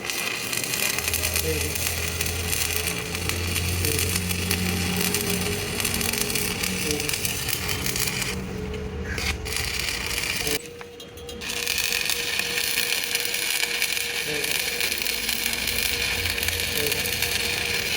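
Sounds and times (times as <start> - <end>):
low motor hum: 0.7 - 10.8.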